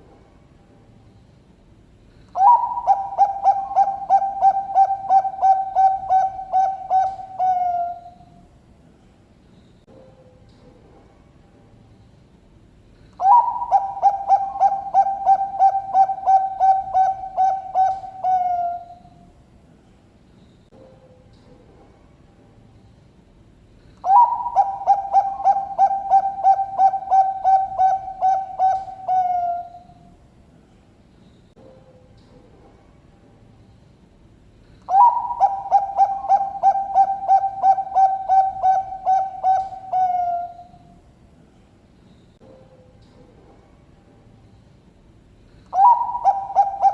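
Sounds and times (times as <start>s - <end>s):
dove cooing: 2.3s - 8.3s, 13.2s - 19.1s, 24.0s - 30.0s, 34.9s - 40.8s, 45.6s - 46.9s.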